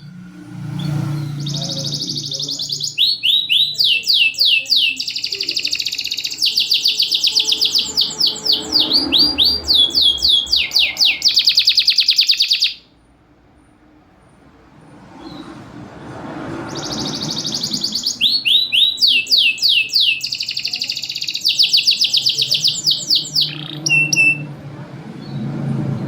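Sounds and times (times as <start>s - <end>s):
canary singing: 0.8s - 13.0s, 16.5s - 24.6s.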